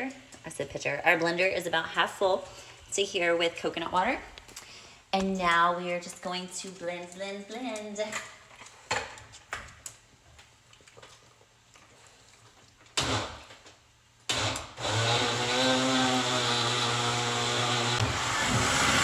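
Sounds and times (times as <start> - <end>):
blender motor running: 14.3 - 19.0.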